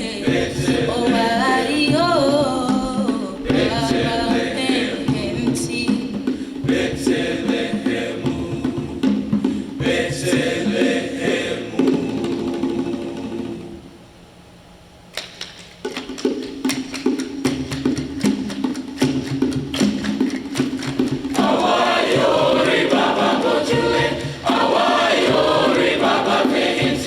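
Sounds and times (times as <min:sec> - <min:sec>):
voices singing: 0:00.0 - 0:14.0, 0:21.2 - 0:27.0
instrumental accompaniment: 0:15.0 - 0:27.0.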